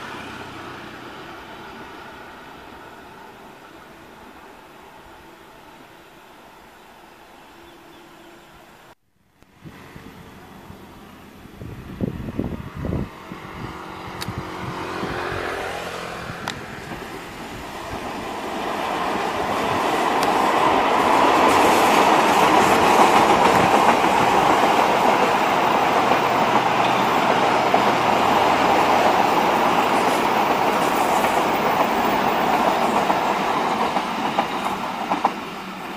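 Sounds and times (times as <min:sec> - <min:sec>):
train coaches rumbling on track: 0:10.2 - 0:35.9
locomotive engine: 0:12.7 - 0:35.9.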